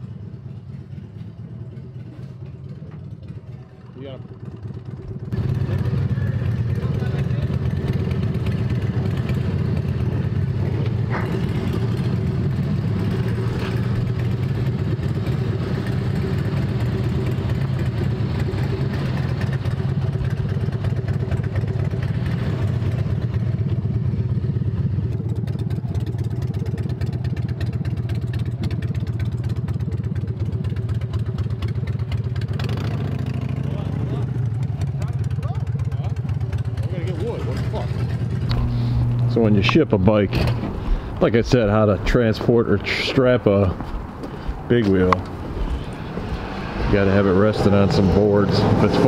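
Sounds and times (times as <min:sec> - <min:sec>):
motorcycle engine idling: 0:00.0 - 0:46.8.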